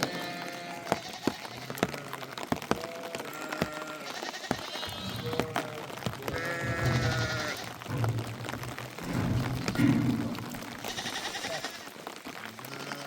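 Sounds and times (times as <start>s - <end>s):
sheep and goats bleating: 0.0s - 13.0s
sharp taps and knocks: 4.4s - 11.8s.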